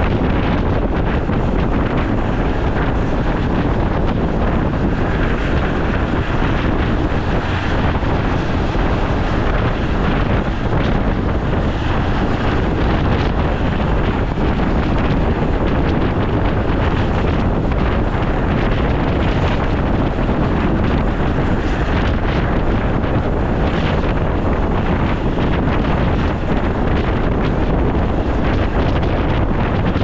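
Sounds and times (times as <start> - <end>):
train rumbling: 0.0 - 30.0
wind buffeting microphone: 0.0 - 30.0.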